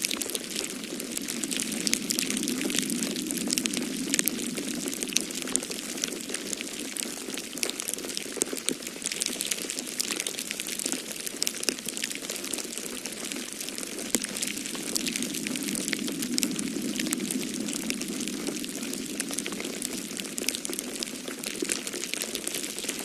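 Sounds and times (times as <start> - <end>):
storm wind rushing: 0.0 - 7.2, 13.2 - 23.0
wood fire crackling: 0.0 - 23.0.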